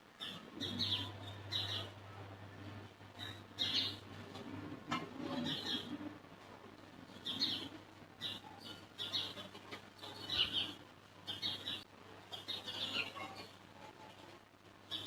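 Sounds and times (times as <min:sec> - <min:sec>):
birds chirping: 0:00.2 - 0:04.2, 0:05.3 - 0:06.1, 0:07.1 - 0:13.6.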